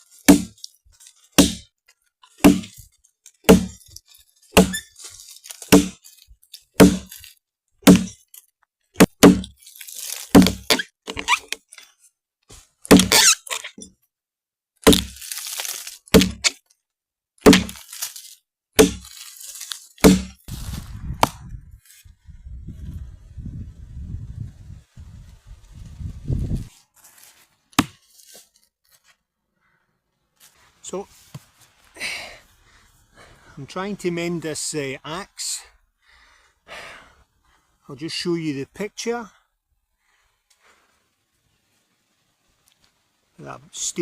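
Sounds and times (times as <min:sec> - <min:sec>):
axe chopping wood: 0:00.2 - 0:00.6, 0:01.3 - 0:01.7, 0:02.4 - 0:02.8, 0:03.4 - 0:03.9, 0:04.5 - 0:04.9, 0:05.6 - 0:06.0, 0:06.8 - 0:07.2, 0:07.8 - 0:08.2, 0:09.0 - 0:11.6, 0:12.9 - 0:13.3, 0:14.8 - 0:15.2, 0:16.1 - 0:16.6, 0:17.4 - 0:17.9, 0:18.8 - 0:19.2, 0:20.0 - 0:20.4, 0:27.8 - 0:28.0
wood splintering: 0:00.2 - 0:01.7, 0:02.3 - 0:08.4, 0:09.0 - 0:11.7, 0:12.8 - 0:13.8, 0:14.8 - 0:16.6, 0:17.4 - 0:20.4
low rustle: 0:20.5 - 0:28.6, 0:40.5 - 0:43.4.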